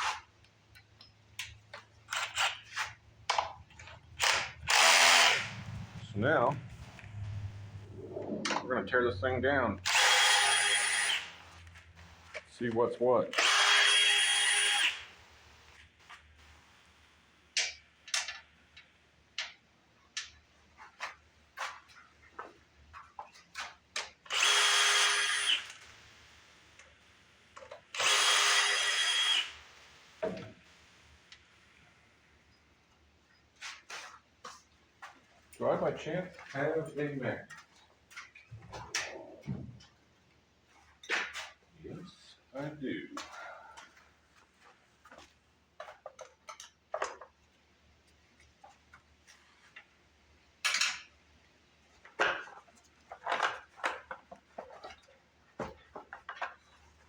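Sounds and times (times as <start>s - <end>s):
power drill spinning: 2.1s - 3.0s, 4.0s - 8.3s, 9.8s - 12.4s, 13.3s - 15.7s, 24.2s - 26.5s, 27.8s - 30.6s.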